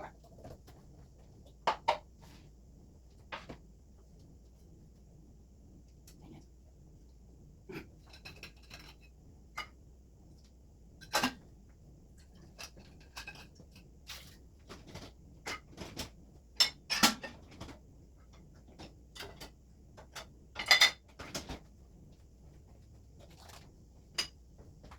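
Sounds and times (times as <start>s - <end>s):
dishes clinking and knocking: 20.1s - 21.5s.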